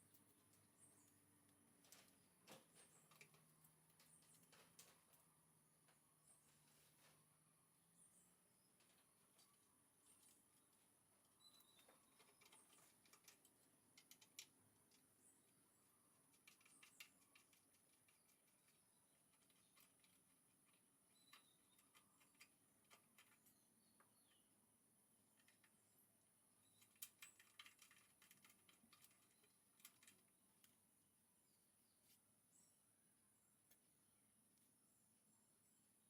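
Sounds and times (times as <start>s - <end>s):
faint clicks and ticks: 8.7s - 24.5s, 25.2s - 31.0s, 33.5s - 34.7s.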